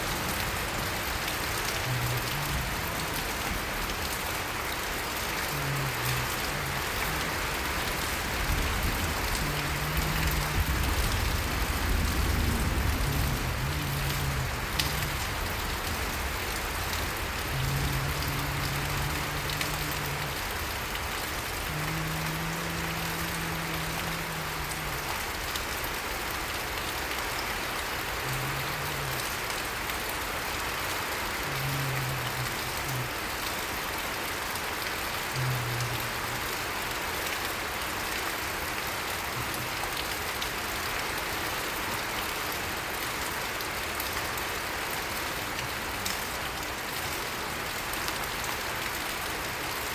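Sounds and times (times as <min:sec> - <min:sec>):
steady rain falling: 0:00.0 - 0:49.9
deep rumble: 0:05.7 - 0:25.6.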